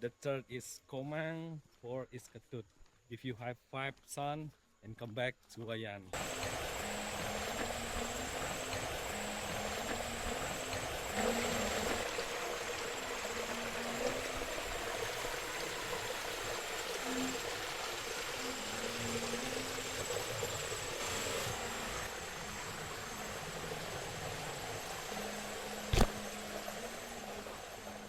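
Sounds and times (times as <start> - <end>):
flowing water rushing: 6.2 - 28.0
high insect drone: 6.2 - 28.0.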